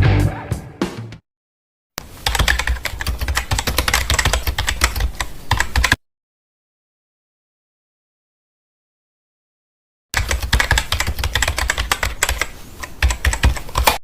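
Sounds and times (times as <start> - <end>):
guitar rock music: 0.0 - 1.2
keyboard typing clicks: 10.2 - 14.0.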